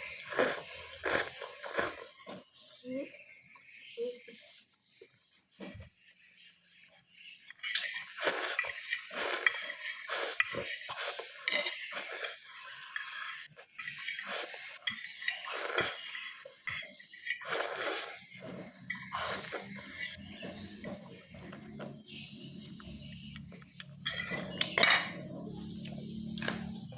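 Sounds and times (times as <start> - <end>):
cutlery clinking against a dish: 7.5 - 18.1, 18.9 - 20.2, 23.8 - 25.3.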